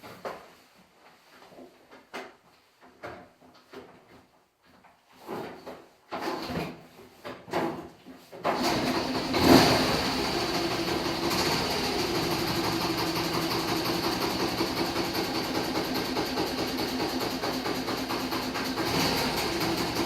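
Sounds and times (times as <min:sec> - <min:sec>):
motorcycle engine starting and idling: 0:08.4 - 0:20.0.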